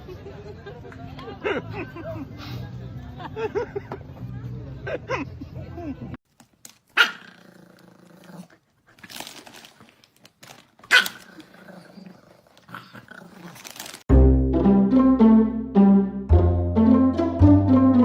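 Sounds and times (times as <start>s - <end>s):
dog barking: 7.0s - 7.4s, 10.9s - 11.2s
music: 14.1s - 18.0s.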